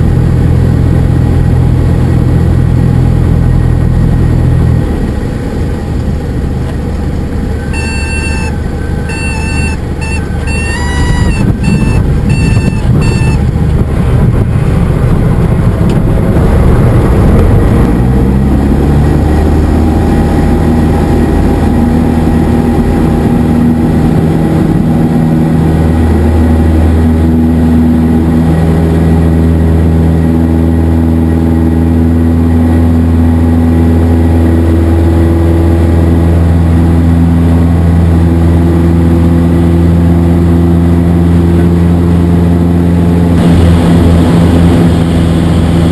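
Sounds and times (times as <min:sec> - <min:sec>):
airplane engine and propeller drone: 0:00.0 - 0:45.9.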